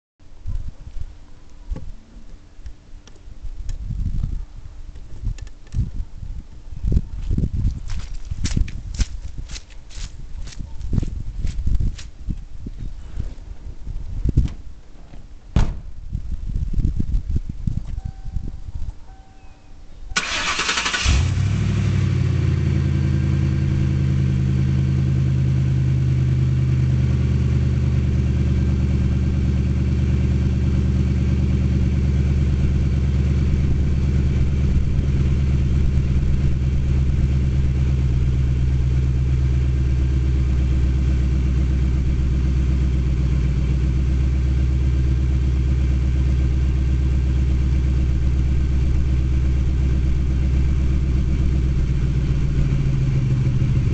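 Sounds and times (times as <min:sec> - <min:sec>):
car engine idling: 0:20.2 - 0:53.9.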